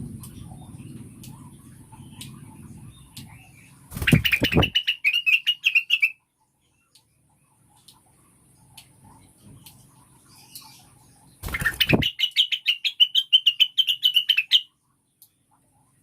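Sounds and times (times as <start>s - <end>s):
wings fluttering: 3.9s - 4.9s, 11.4s - 12.4s
bird chattering chirps: 4.0s - 6.2s, 10.4s - 14.7s.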